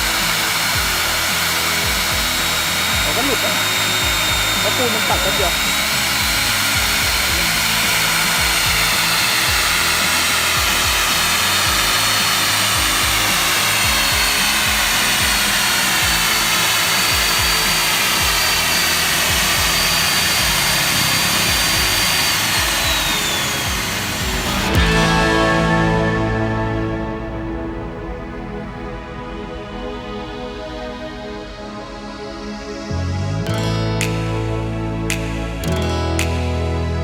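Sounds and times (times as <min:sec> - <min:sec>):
core drill grinding concrete: 0:00.0 - 0:25.9.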